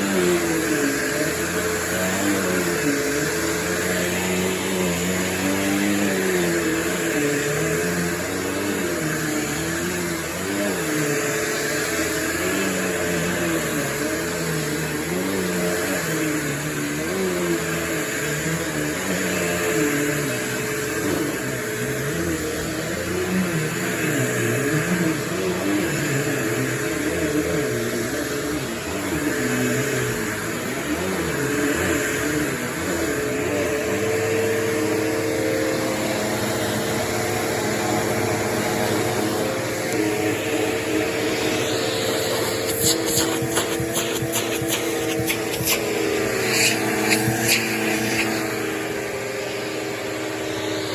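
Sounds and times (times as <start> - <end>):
upright vacuum motor whine: 0.0 - 50.9.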